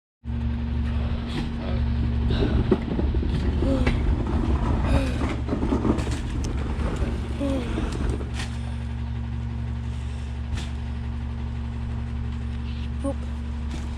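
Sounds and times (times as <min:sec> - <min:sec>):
garbage truck diesel hum: 0:00.2 - 0:13.9
clattering and knocks: 0:01.3 - 0:08.9.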